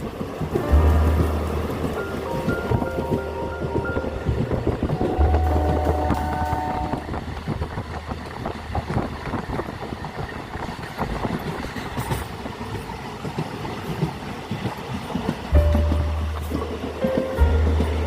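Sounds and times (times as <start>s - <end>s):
train rumble: 0.0s - 18.0s
train wheels rattling and clattering: 0.0s - 18.0s.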